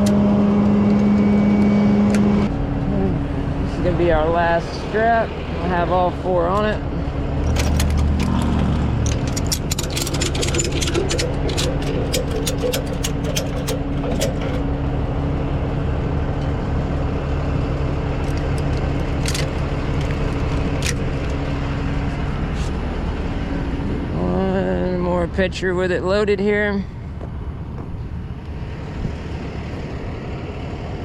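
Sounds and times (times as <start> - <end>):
truck engine idling: 0.0 - 31.0
ratchet strap clicking: 7.5 - 14.6.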